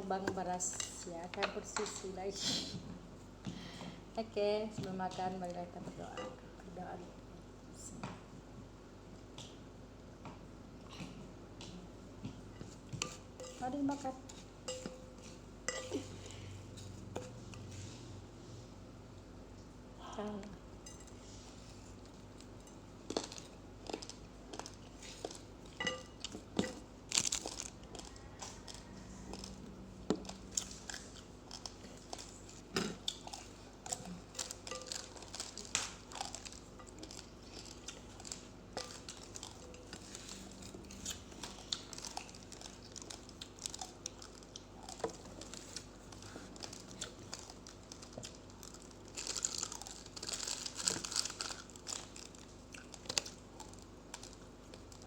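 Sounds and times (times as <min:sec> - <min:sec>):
person chewing crunchy rice: 0:21.4 - 0:55.0.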